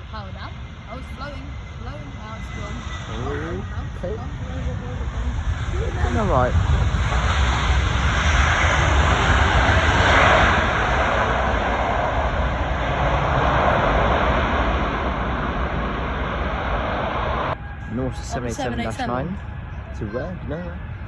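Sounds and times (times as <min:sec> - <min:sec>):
jet airliner engines roaring: 0:00.0 - 0:21.0.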